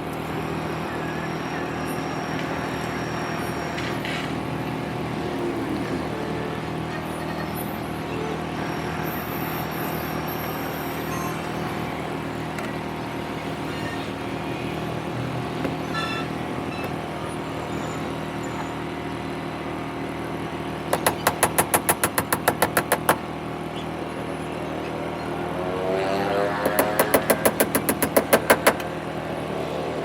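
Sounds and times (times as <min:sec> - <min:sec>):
fast sharp clicks: 0:20.9 - 0:23.2, 0:26.6 - 0:28.9.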